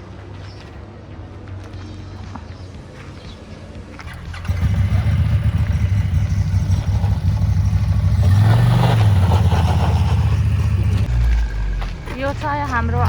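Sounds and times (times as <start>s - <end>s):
vehicle engine revving: 4.0s - 13.0s.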